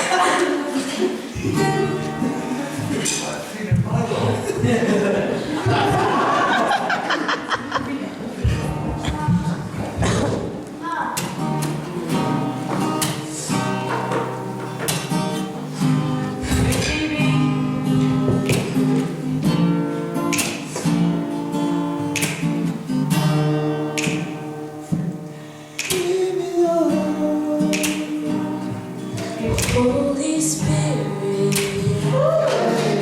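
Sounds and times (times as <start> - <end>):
person singing: 0.0 - 2.9, 16.0 - 21.2, 25.7 - 33.0
acoustic guitar strumming: 0.0 - 4.6, 8.4 - 33.0.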